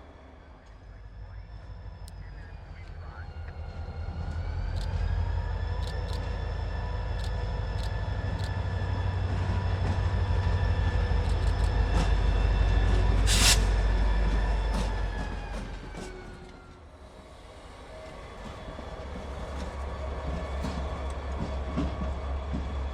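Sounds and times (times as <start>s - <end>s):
locomotive engine rumble: 0.0s - 22.9s
train wheel clicks: 4.7s - 5.1s, 5.7s - 6.4s, 7.1s - 8.6s, 11.1s - 12.2s.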